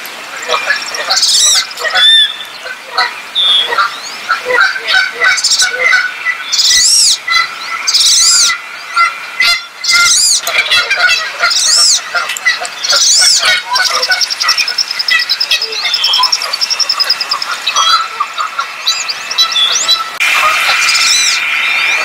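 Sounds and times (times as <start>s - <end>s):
birds chirping: 0.0s - 22.0s
bird whistled call: 0.8s - 2.5s, 6.4s - 10.8s, 12.6s - 18.2s.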